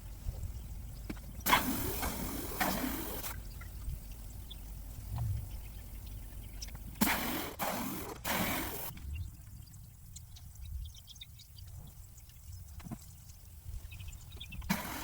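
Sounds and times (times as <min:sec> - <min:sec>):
faint low rumble: 0:03.3 - 0:07.0.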